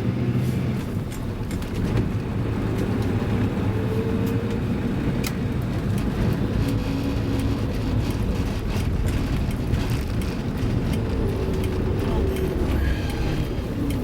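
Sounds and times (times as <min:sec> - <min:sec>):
diesel engine running: 0:00.0 - 0:14.0
light ticks and rattles: 0:05.2 - 0:14.0.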